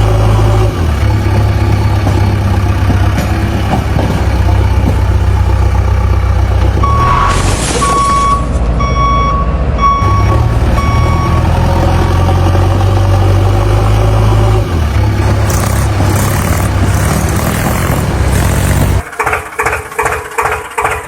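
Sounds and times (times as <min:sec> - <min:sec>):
heavy vehicle engine rumbling: 0:00.0 - 0:21.0
vehicle reversing alarm beeping: 0:06.8 - 0:11.8.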